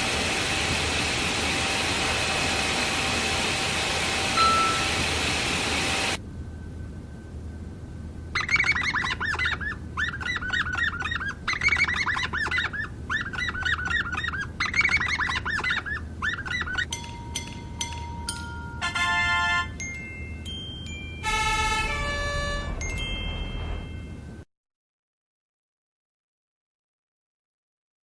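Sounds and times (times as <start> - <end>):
bell-like chime tones: 4.4 - 5.0, 16.9 - 19.0, 19.8 - 24.4
birds chirping: 8.4 - 17.0.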